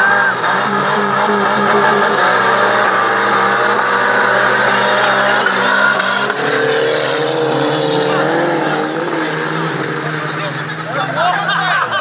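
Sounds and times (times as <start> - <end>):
car engines revving hard: 0.0 - 12.0.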